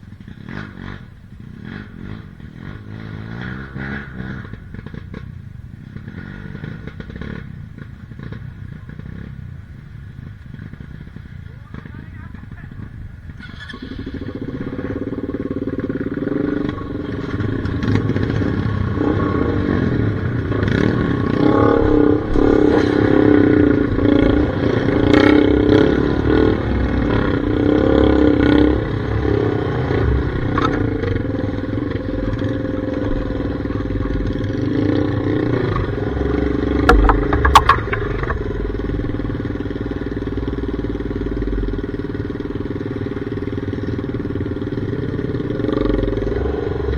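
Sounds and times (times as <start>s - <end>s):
dirt bike engine running: 0.0s - 46.9s
sharp knocks and clatters: 29.3s - 39.8s.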